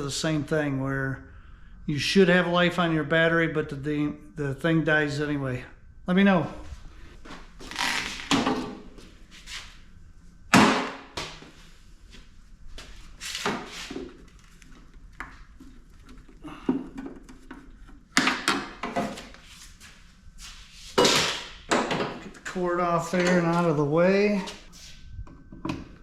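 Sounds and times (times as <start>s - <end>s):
tools and parts knocking: 16.7s - 19.1s.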